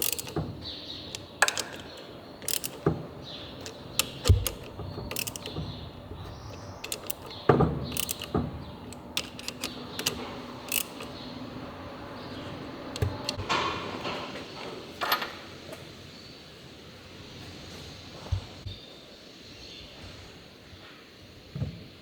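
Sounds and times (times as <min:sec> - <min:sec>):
metal tools clicking and clinking: 0:00.0 - 0:03.0, 0:03.6 - 0:11.4, 0:12.2 - 0:13.7.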